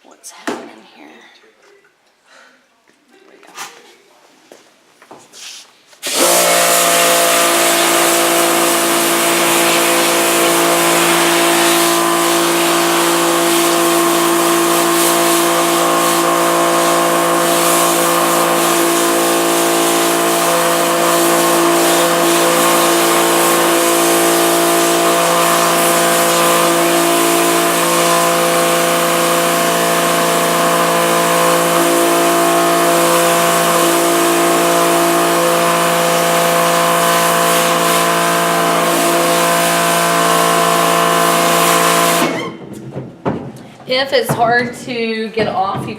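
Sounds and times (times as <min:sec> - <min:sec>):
pump motor humming: 0:06.0 - 0:42.6
water jet hissing: 0:06.0 - 0:42.6.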